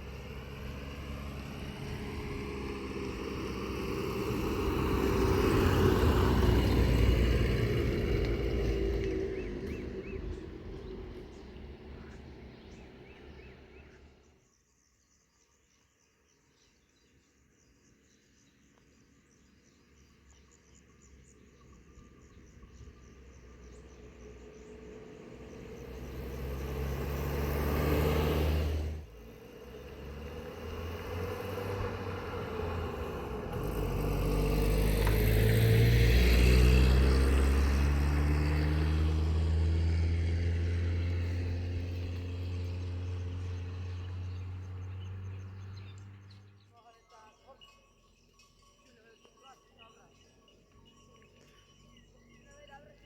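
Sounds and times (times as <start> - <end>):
motor vehicle engine passing: 0.0 - 14.4, 19.7 - 46.8.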